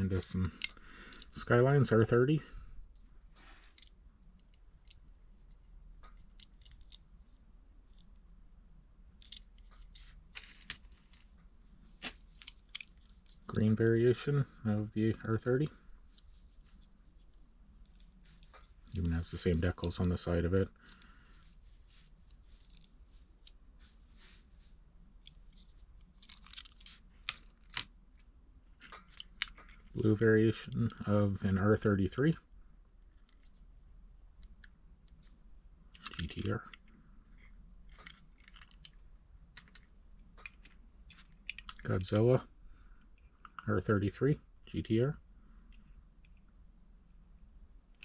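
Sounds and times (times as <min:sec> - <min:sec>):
plastic packaging clicks and crinkles: 0:25.2 - 0:27.9, 0:37.8 - 0:42.0.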